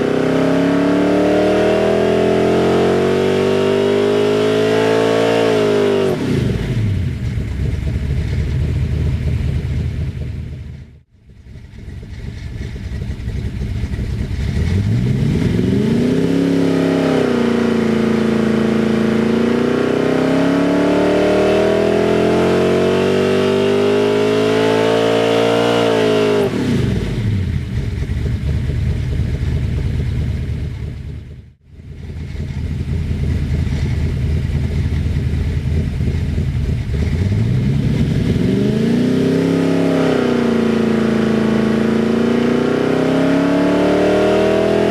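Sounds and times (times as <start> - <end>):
engine revving on a dyno: 0.0 - 7.0, 14.5 - 27.5, 36.9 - 44.9.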